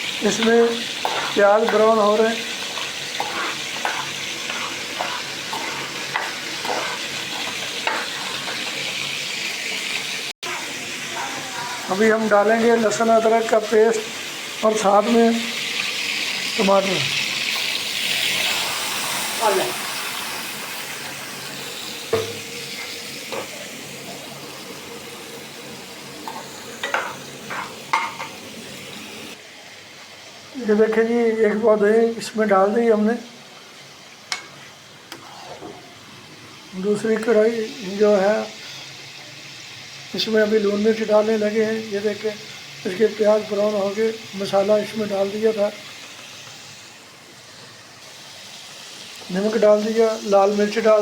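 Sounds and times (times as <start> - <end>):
meat and onions sizzling in oil: 0.0 - 51.0
spoon scraping a pan: 0.2 - 9.1, 26.2 - 28.4, 34.3 - 35.9.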